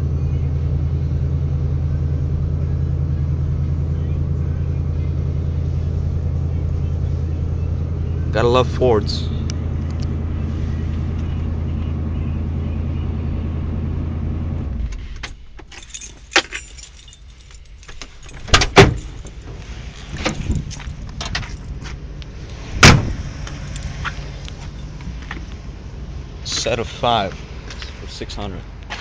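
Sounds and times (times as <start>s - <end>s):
car engine idling: 0.0s - 29.0s
keys jangling: 15.2s - 21.8s, 23.5s - 25.0s.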